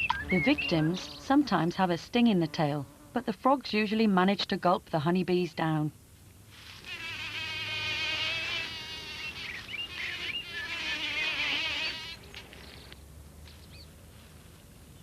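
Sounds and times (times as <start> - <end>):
bee buzzing in flight: 6.8 - 12.4.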